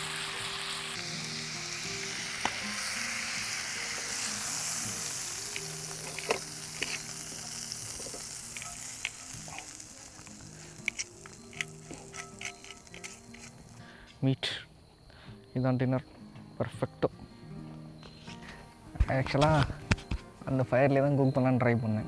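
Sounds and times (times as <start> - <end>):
meat sizzling: 0.0 - 14.0
soft background music: 0.0 - 22.0.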